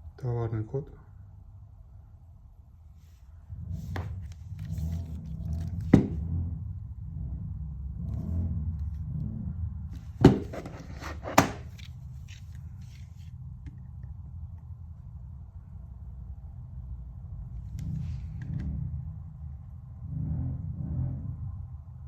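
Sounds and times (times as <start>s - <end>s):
low handling rumble: 1.1s - 22.0s
heavy part knocking on hard surface: 5.9s - 6.2s, 10.2s - 11.7s.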